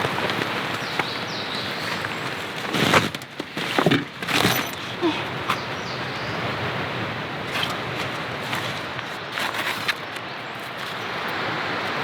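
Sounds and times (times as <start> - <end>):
knocks and scrapes: 1.9 - 5.6.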